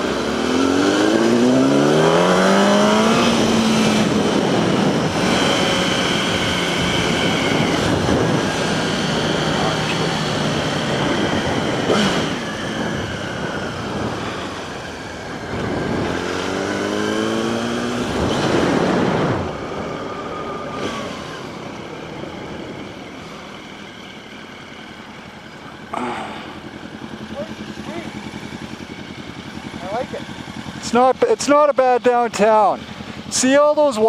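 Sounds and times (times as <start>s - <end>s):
wind noise: 0.0s - 23.1s
motorcycle engine: 0.0s - 34.0s.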